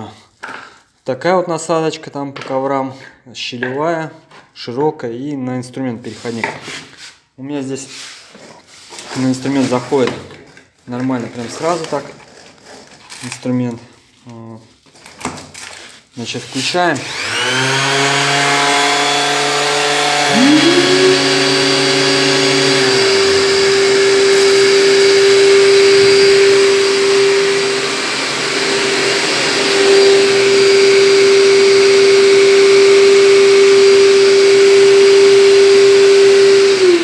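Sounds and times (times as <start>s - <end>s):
power tool running: 17.0s - 37.0s
shop vacuum motor whine: 17.0s - 37.0s.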